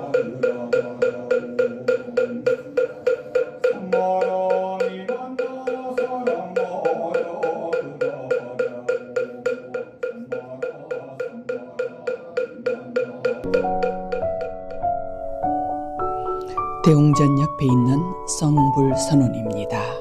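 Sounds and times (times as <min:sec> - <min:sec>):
chanting: 0:00.0 - 0:13.5
wooden fish struck in fast beat: 0:00.0 - 0:15.7.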